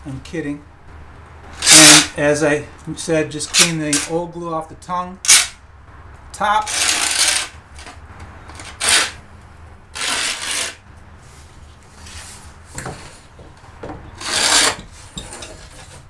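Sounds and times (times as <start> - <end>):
paint scraper scraping wood: 1.6 - 2.1, 6.6 - 9.2, 10.0 - 13.4, 14.1 - 16.0.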